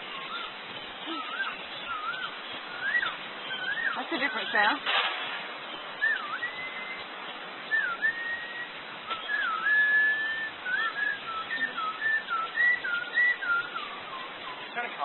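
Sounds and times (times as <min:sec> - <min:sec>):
bird whistling: 0:00.0 - 0:04.9, 0:05.6 - 0:15.0
person whistling: 0:00.3 - 0:04.4, 0:06.0 - 0:07.0, 0:07.7 - 0:14.6.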